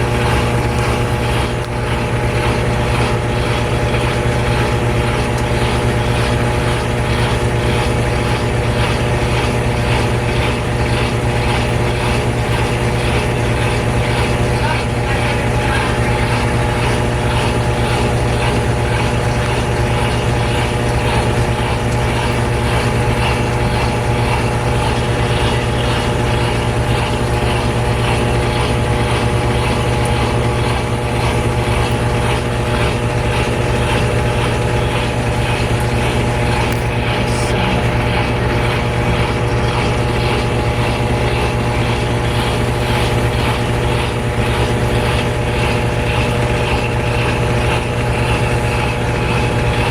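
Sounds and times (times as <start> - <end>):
washing machine spinning: 0.0 - 49.9.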